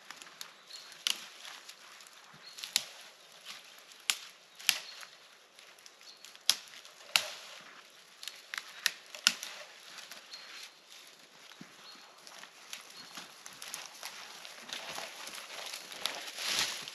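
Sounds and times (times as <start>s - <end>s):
sharp knocks and cracks: 4.0s - 5.1s, 6.4s - 7.6s, 8.2s - 9.7s.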